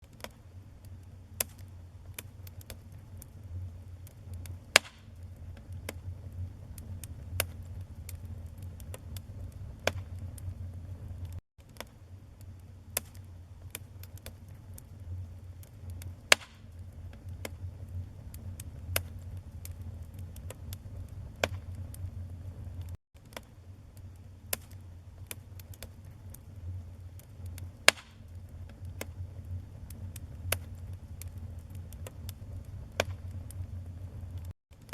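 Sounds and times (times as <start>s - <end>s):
low rumble of flame: 0.0s - 34.9s
wood fire crackling: 0.0s - 34.9s
sharp pops: 16.3s - 16.6s.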